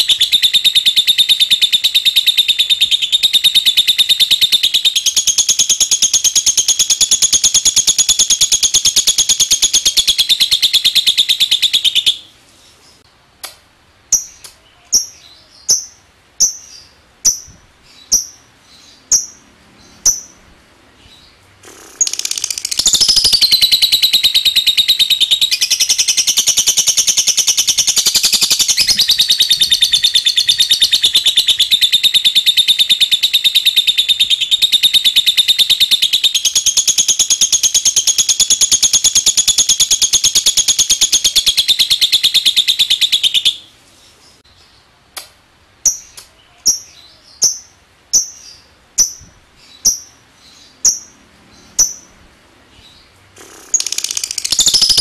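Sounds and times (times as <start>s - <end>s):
lovebird rattling trill: 21.6s - 43.4s, 53.4s - 55.0s
short high bird chirps: 21.6s - 43.6s, 53.4s - 55.0s.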